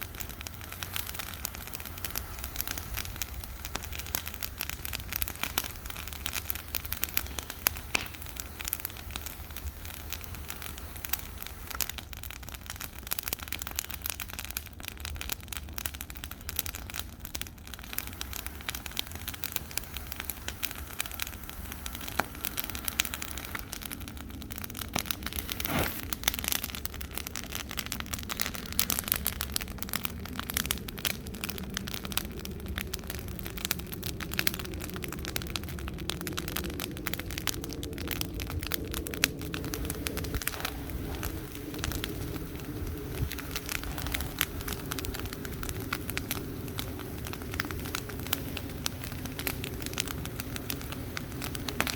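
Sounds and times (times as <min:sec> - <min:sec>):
sharp crack: 0:00.0 - 0:14.2, 0:16.0 - 0:31.6
bonfire crackling: 0:00.0 - 0:51.9
low fire rumble: 0:00.0 - 0:51.9.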